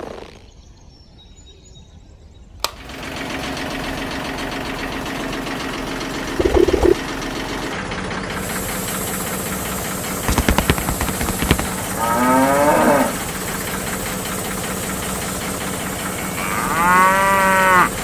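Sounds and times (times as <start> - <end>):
steady engine-like hum: 2.8 - 18.0
sharp knocks: 10.3 - 12.0
cattle mooing: 11.9 - 13.4, 16.1 - 18.0.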